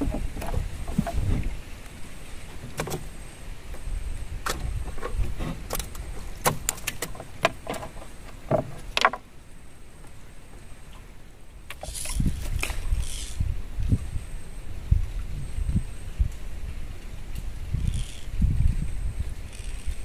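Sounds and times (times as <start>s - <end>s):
fishing gear clicking and knocking: 4.4s - 9.2s, 11.7s - 13.4s, 17.8s - 18.3s, 19.5s - 20.0s.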